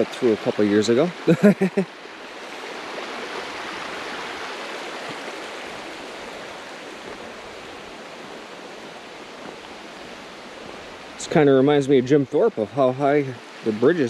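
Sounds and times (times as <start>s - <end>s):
flowing river water: 0.0s - 14.0s.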